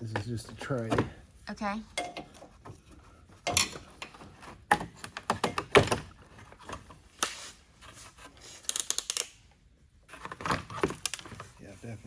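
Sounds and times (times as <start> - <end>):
knocks of tools under a car: 2.0 - 2.8, 3.4 - 6.8.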